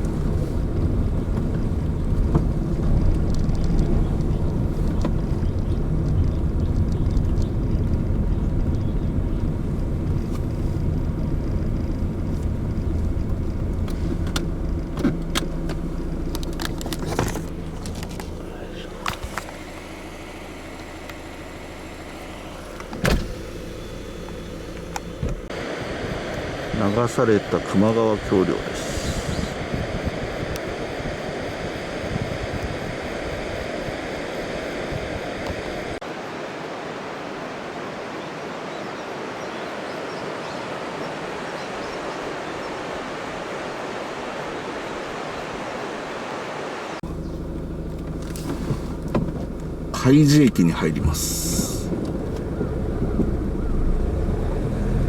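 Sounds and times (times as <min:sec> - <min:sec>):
car engine and tyre rumble: 0:00.0 - 0:55.0
thump: 0:23.0 - 0:23.4
river rushing: 0:25.4 - 0:47.0.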